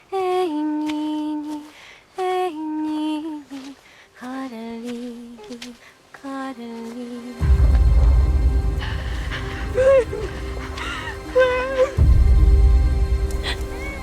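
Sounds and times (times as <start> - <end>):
woman singing unaccompanied: 0.0 - 7.8.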